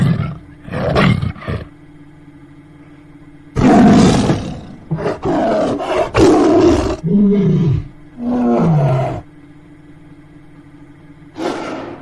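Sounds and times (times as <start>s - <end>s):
tiger roaring: 0.0s - 1.8s, 3.6s - 9.3s, 11.3s - 12.0s.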